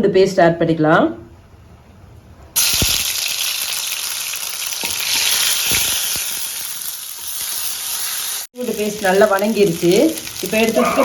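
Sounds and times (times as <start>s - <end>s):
paste sizzling in hot oil: 2.6s - 11.0s.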